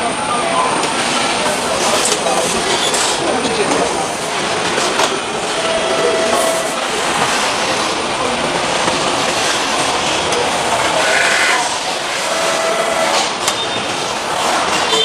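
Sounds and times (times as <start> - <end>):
assembly line machinery clattering: 0.8 - 15.0
high-pitched squeal: 5.4 - 7.1.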